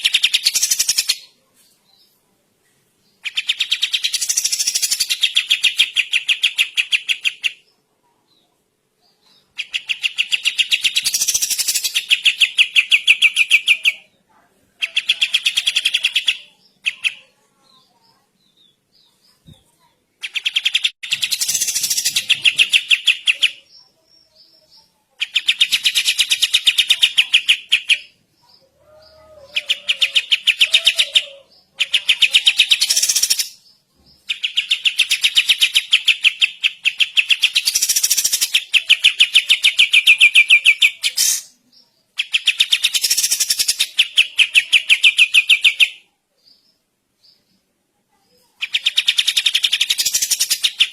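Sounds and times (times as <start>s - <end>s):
bird rattling song: 3.3s - 7.5s, 9.6s - 13.8s, 20.2s - 23.5s, 34.2s - 41.5s, 42.2s - 46.0s, 48.6s - 50.9s.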